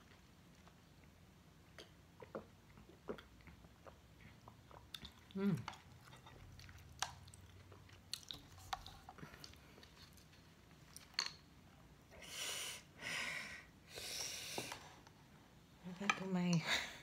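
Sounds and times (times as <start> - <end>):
person chewing food: 0.0 - 11.2.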